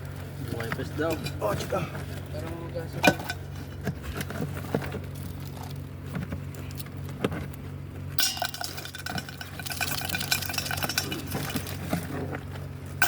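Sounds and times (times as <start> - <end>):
steady low hum: 0.0 - 13.0
rattling clatter in metal pot: 0.6 - 1.7, 3.0 - 5.8, 8.2 - 13.0
clinks and knocks in metal pot: 3.0 - 3.9, 8.2 - 12.1.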